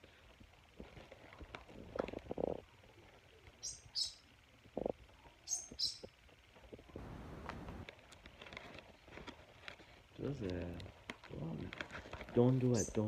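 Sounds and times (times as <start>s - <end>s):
scratchy crackles: 6.7s - 13.0s.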